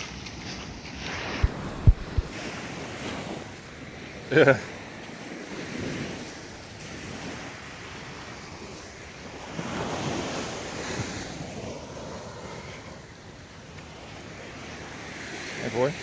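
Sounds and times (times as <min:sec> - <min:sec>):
wind buffeting microphone: 0:00.0 - 0:04.3
small waves washing onto beach: 0:00.0 - 0:16.0.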